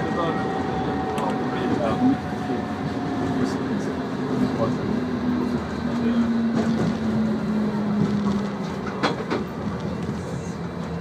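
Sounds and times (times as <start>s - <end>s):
tram running on track: 0.0s - 11.0s.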